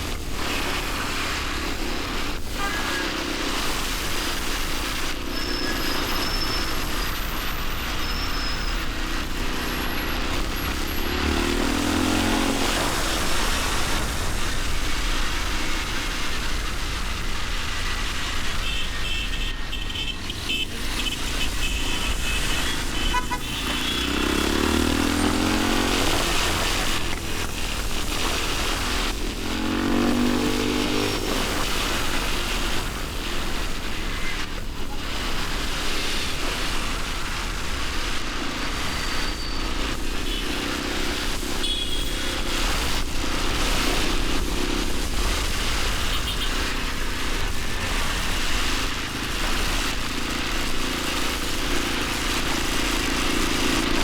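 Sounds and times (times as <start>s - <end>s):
road and wind noise: 0.0s - 54.0s
motorcycle engine accelerating: 8.8s - 18.5s, 20.4s - 34.2s, 35.0s - 54.0s.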